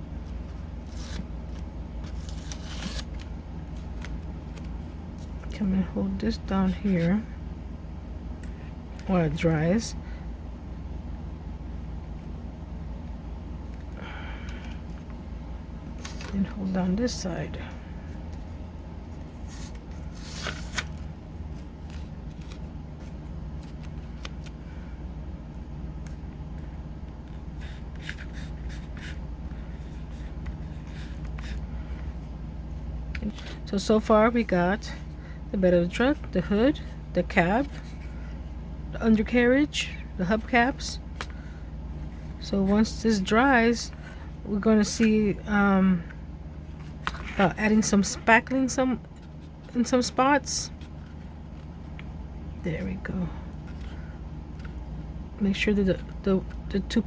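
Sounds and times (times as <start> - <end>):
steady low hum: 0.0 - 57.0
tape rustling: 0.3 - 5.5, 19.2 - 24.6.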